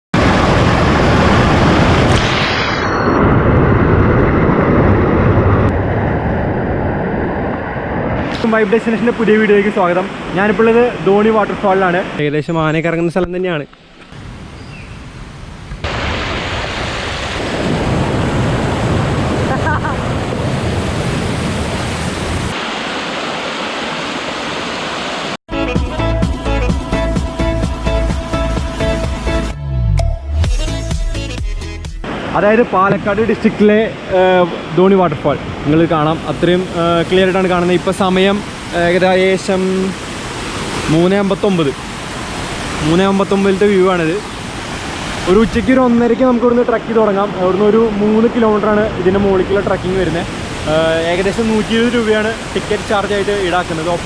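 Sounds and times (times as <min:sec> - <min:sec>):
wind rumble on microphone: 0:00.2 - 0:08.4
loud rushing noise: 0:00.2 - 0:08.7
waterfall rushing: 0:08.2 - 0:12.2, 0:15.8 - 0:25.4, 0:32.0 - 0:54.0
electronic music with beat: 0:25.5 - 0:32.1.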